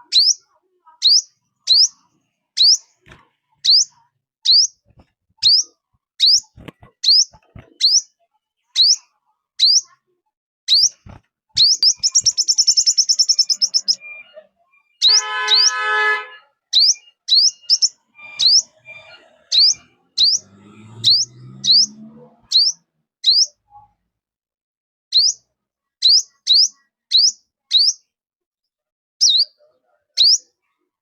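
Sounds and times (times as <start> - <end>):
rapid bird trill: 4.5 - 4.8, 5.4 - 8.1, 10.7 - 23.6, 26.0 - 28.0.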